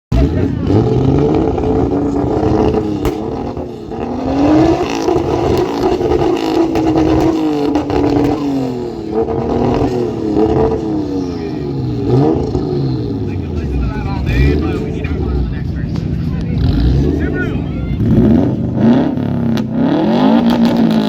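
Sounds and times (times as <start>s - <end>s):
car engine revving: 0.1s - 21.0s.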